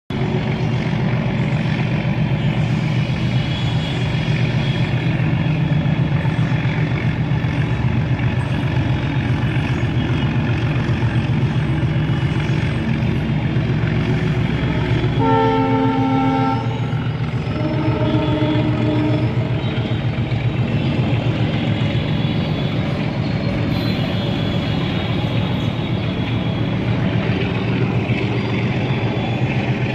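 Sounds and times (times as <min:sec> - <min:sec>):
diesel locomotive engine throbbing: 0:00.1 - 0:29.9
locomotive horn blasts: 0:15.0 - 0:20.1.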